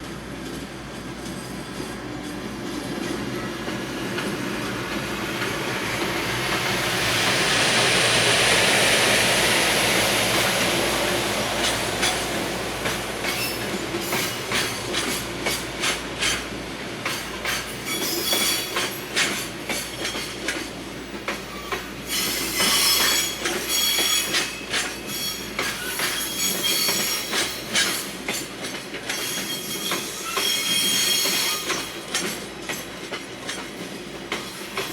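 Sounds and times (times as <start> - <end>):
train running noise: 0.0 - 34.9
wheels clacking over rail joints: 10.2 - 34.9
high wheel squeal: 13.2 - 15.2, 17.7 - 19.3, 21.4 - 28.1, 29.2 - 32.0.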